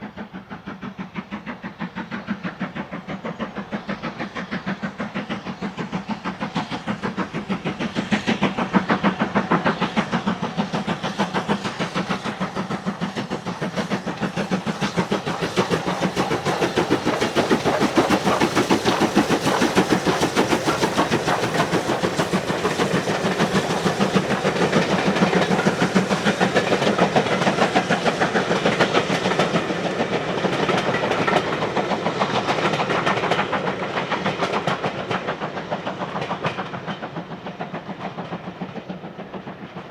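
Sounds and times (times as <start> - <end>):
steam locomotive exhaust beating: 0.0 - 39.9.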